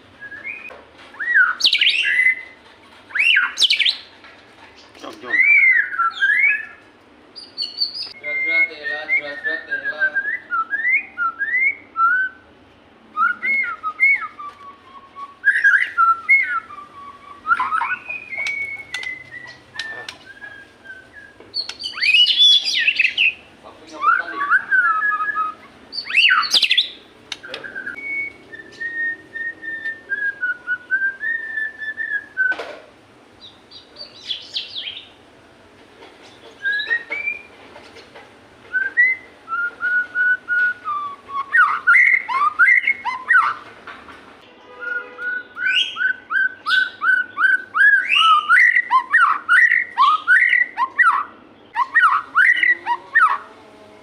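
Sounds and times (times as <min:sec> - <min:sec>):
bird singing whistled phrases: 0:00.2 - 0:04.1, 0:05.2 - 0:06.8, 0:07.4 - 0:12.4, 0:13.2 - 0:32.6, 0:33.4 - 0:35.1, 0:36.6 - 0:37.5, 0:38.7 - 0:43.6, 0:44.7 - 0:53.4.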